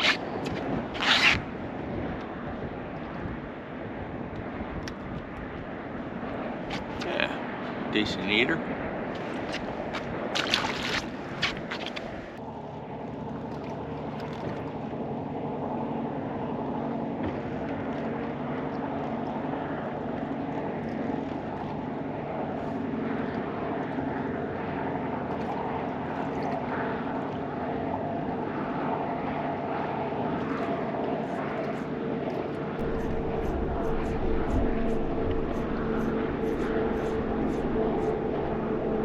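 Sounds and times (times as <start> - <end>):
wind: 0.0 - 39.0
water noise: 8.6 - 39.0
engine droning: 11.1 - 39.0.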